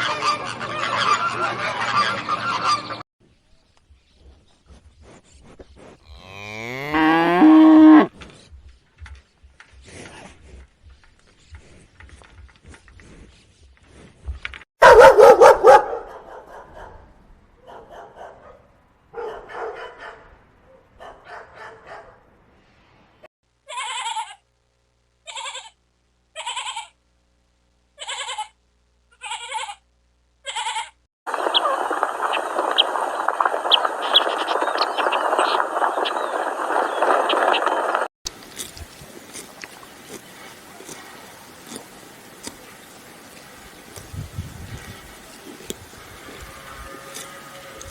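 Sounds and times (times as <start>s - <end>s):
hissing rustling noise: 8.1s - 14.7s, 31.3s - 47.9s.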